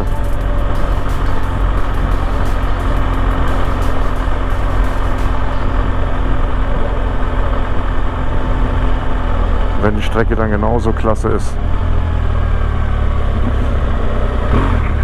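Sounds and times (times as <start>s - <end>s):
motorcycle engine running: 0.0s - 10.6s
road noise: 0.0s - 15.0s.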